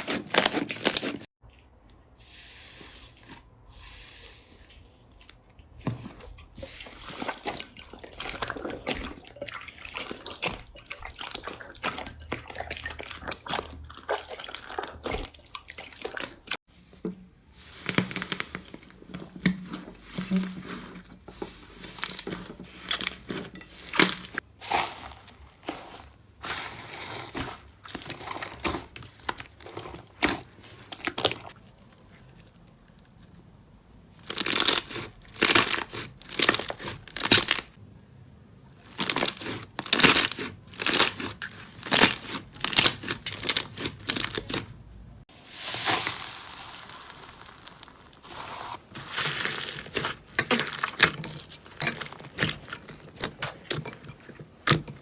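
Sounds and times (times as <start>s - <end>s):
slime crackling and popping: 34.2s - 37.8s, 38.9s - 44.6s, 45.5s - 51.5s.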